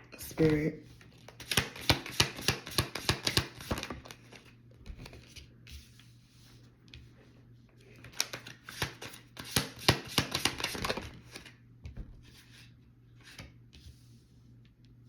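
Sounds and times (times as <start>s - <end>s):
cards being shuffled: 0.9s - 6.2s, 7.9s - 11.6s
cards tapping and sliding: 1.2s - 5.4s, 8.0s - 11.5s.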